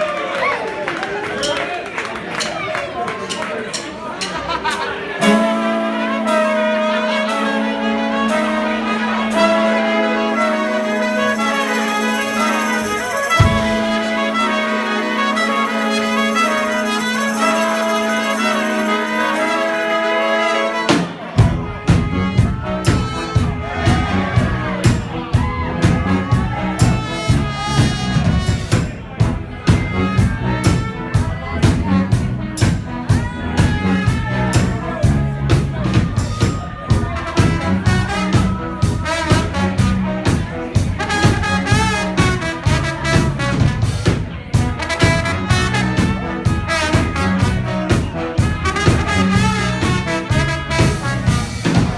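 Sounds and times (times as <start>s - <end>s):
brass band playing: 0.0s - 51.9s
drum kit beat: 3.3s - 51.9s
percussion hits: 11.1s - 14.4s.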